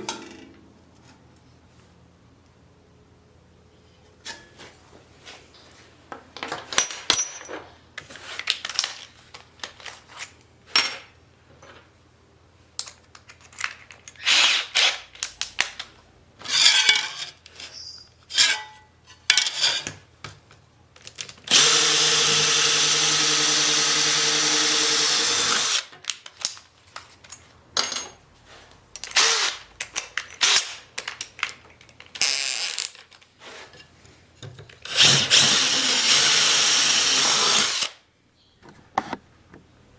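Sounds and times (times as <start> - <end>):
metal tools clinking and knocking: 6.4 - 7.7, 12.8 - 14.2, 29.0 - 32.2
power tool running: 21.5 - 25.9, 34.9 - 38.0.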